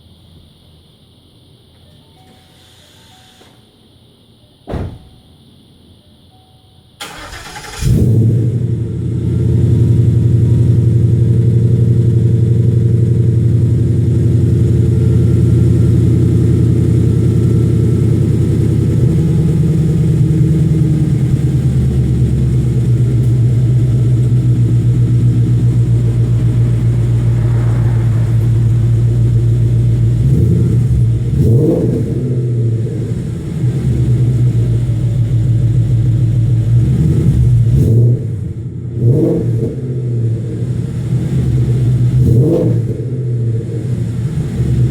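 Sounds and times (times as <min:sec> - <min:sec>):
car engine idling: 0:07.0 - 0:44.9
engine revving lightly: 0:21.8 - 0:34.5.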